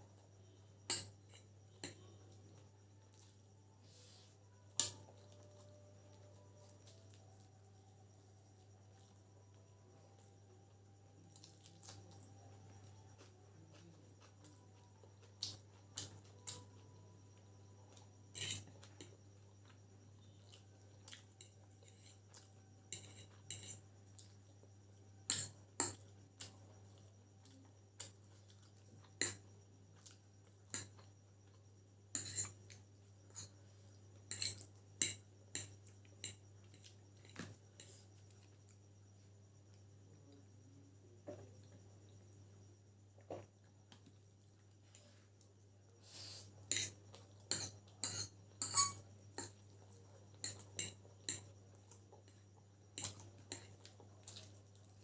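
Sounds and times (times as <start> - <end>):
cutlery clinking on a plate: 22.9 - 23.8, 32.2 - 32.6, 46.7 - 49.6.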